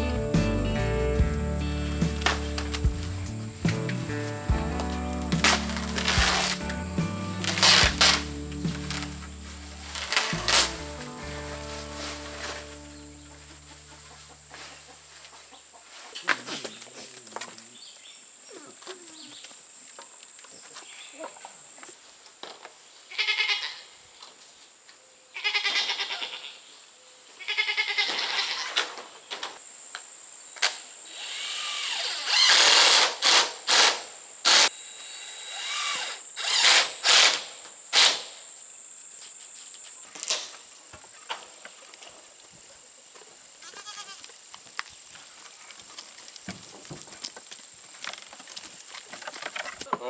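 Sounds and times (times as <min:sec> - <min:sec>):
goats bleating: 0:01.2 - 0:14.2, 0:43.6 - 0:44.3.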